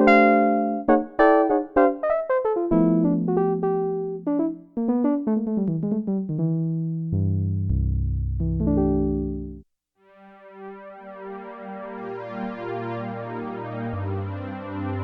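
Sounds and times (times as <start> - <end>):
synthesizer electric piano notes: 0.0 - 9.6
low held synth notes: 7.1 - 9.6.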